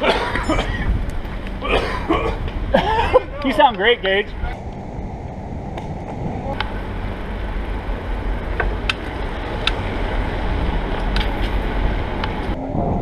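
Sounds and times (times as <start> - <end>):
wind rumble on microphone: 0.4 - 13.0
bicycle clicks and rattles: 8.4 - 12.6.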